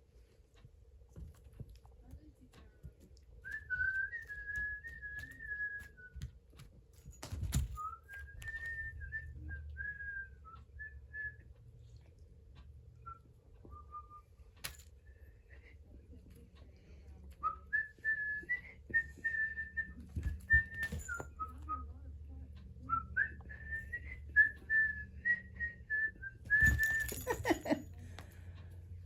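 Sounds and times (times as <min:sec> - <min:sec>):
person whistling a tune: 0:07.8 - 0:11.5, 0:17.4 - 0:21.8, 0:22.9 - 0:27.4
handling clatter: 0:20.2 - 0:21.4, 0:26.5 - 0:27.9.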